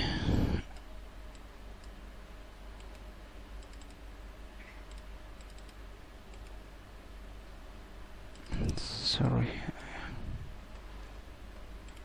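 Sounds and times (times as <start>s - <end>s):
low steady hum: 0.0s - 12.0s
mouse and keyboard clicks: 3.6s - 4.0s, 4.6s - 6.6s.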